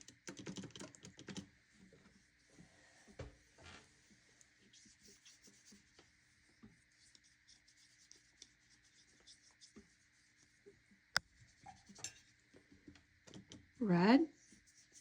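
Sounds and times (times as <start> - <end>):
paintbrush strokes on paper: 3.9 - 12.5, 14.4 - 15.0.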